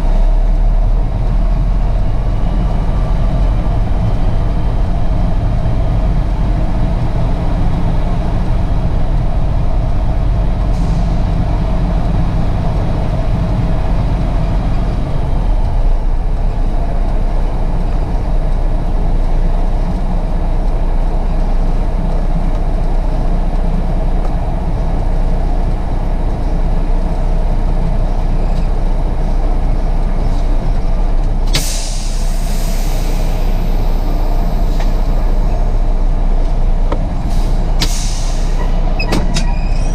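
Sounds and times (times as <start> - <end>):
diesel truck engine running: 0.0 - 39.9
air brakes hissing: 10.6 - 11.7, 31.5 - 35.8, 37.2 - 39.9.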